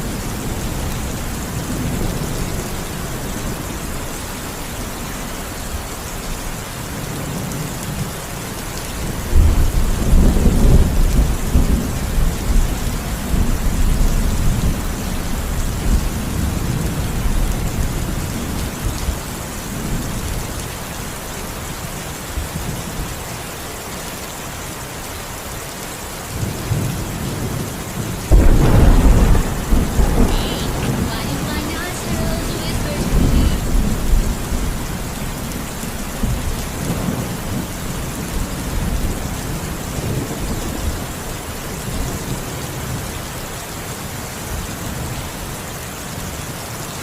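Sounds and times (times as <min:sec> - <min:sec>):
steady rain: 0:00.0 - 0:47.0
thunder rumbling: 0:26.3 - 0:41.0.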